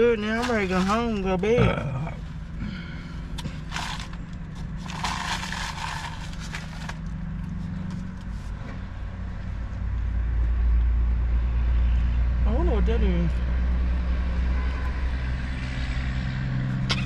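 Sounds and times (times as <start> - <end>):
car cabin hum: 0.0 - 8.8
food packaging rustling: 3.7 - 7.6.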